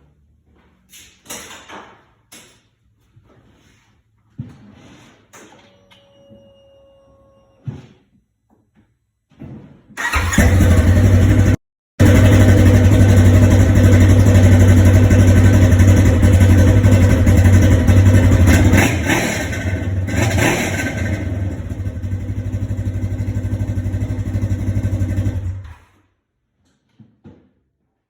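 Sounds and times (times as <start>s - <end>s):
engine revving: 10.0s - 25.7s
engine running with deep exhaust: 10.4s - 25.7s.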